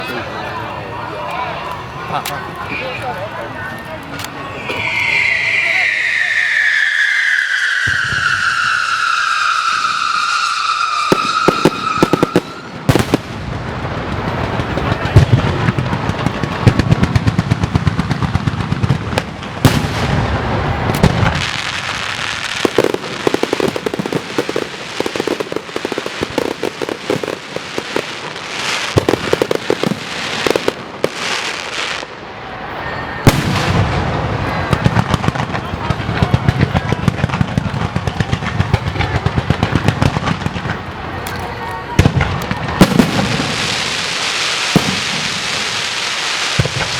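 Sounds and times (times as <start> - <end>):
firecrackers crackling: 0.0 - 46.9
high falling whistle: 4.4 - 13.0.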